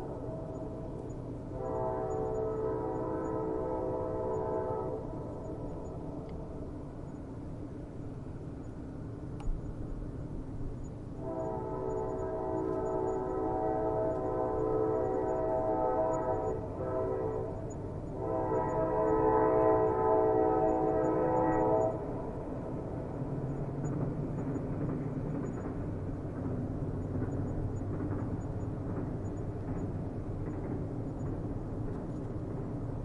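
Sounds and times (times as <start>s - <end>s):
train horn blasts: 0.0s - 5.6s, 11.2s - 22.3s
train running rumble: 0.0s - 33.0s.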